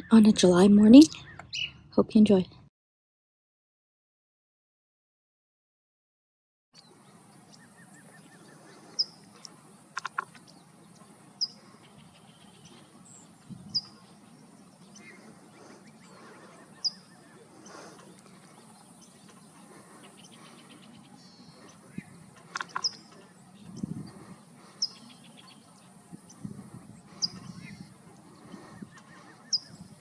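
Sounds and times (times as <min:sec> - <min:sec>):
outdoor background hiss: 0:06.8 - 0:30.0.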